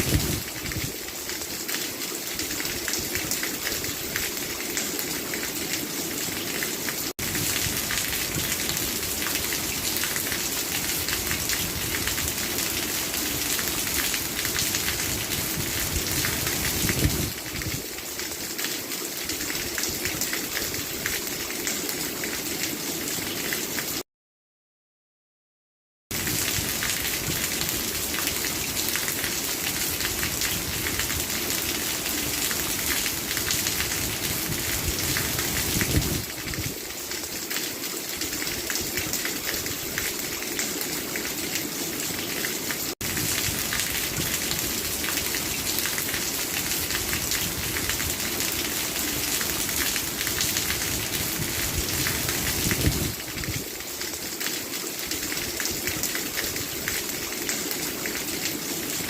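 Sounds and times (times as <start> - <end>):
steady rain falling: 0.0 - 24.0, 26.1 - 59.0.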